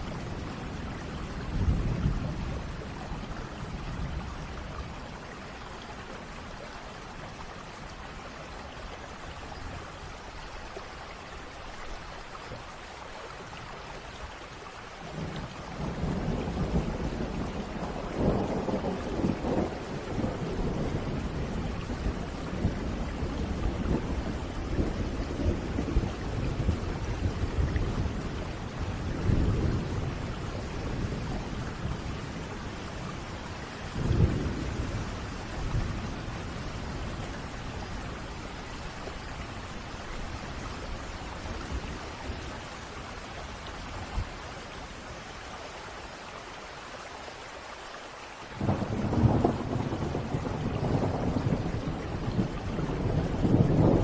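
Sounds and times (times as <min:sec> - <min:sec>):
steady rain: 0:00.0 - 0:54.0
thunder rolling: 0:48.6 - 0:54.0.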